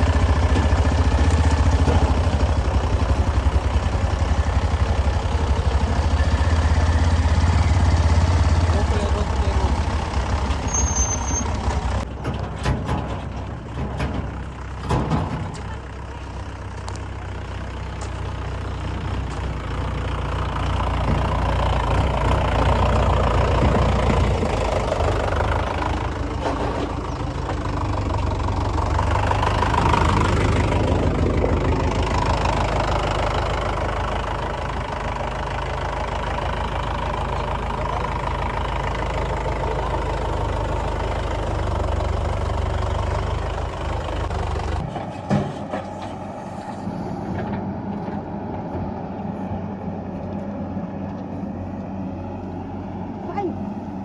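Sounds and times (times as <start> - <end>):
diesel engine working under load: 0.0 - 54.0.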